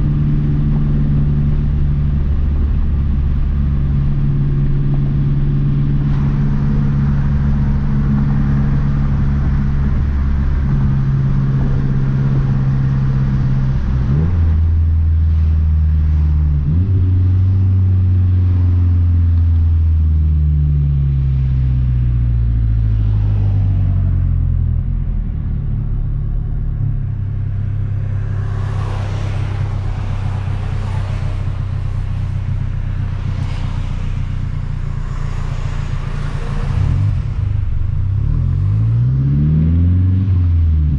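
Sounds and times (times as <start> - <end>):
car engine running: 0.0 - 40.9
rushing noise: 26.5 - 39.3.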